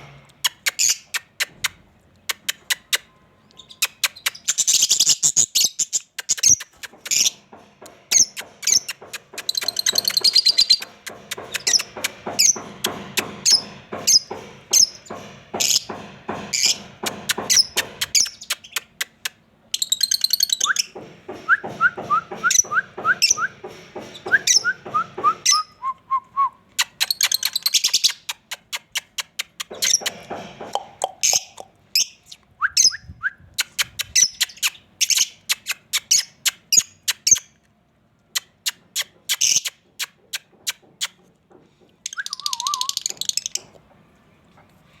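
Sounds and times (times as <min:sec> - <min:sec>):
small parrots chirping: 0:00.4 - 0:01.7, 0:02.3 - 0:07.4, 0:08.1 - 0:12.6, 0:16.6 - 0:20.9, 0:26.8 - 0:30.2, 0:30.8 - 0:33.0, 0:33.6 - 0:37.6, 0:38.3 - 0:41.2, 0:42.1 - 0:43.8.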